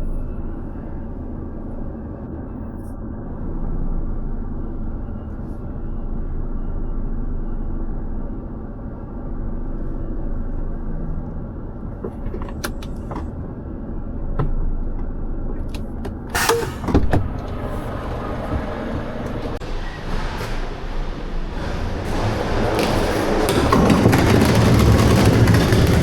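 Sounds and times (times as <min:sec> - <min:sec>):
truck engine rumbling: 0:00.0 - 0:26.0
loud knocks: 0:21.6 - 0:26.0.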